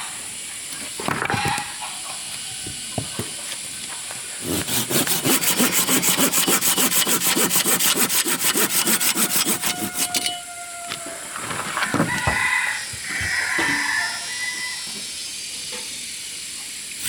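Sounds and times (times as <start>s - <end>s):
hand saw cutting wood: 4.4s - 10.4s.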